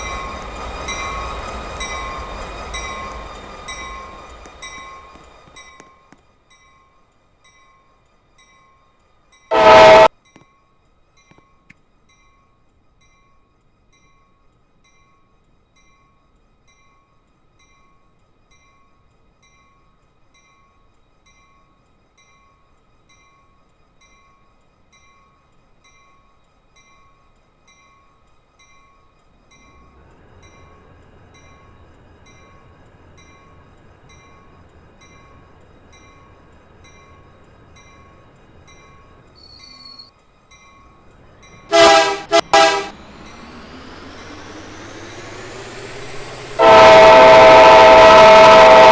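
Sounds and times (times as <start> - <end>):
train rumble: 0.0 - 8.4, 9.0 - 10.2, 24.6 - 48.9
bell ringing: 9.5 - 10.1
train horn blast: 9.5 - 10.1, 41.7 - 48.9.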